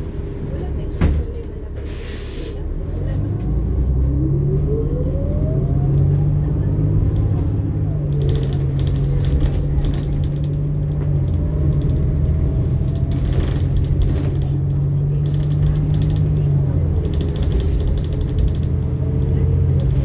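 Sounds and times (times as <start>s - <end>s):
bus engine humming: 0.0s - 20.0s
metallic jangling rattles: 8.2s - 10.8s, 13.0s - 16.4s, 17.1s - 18.7s.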